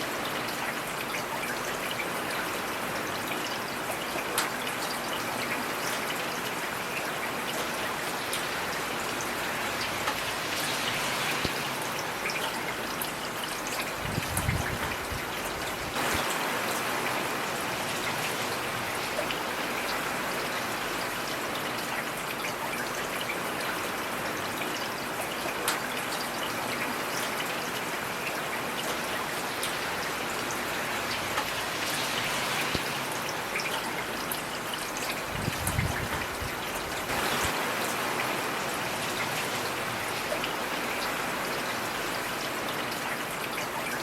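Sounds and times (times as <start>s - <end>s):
heavy rain hissing: 8.2s - 12.3s, 13.9s - 20.8s, 29.3s - 34.2s, 35.1s - 42.3s.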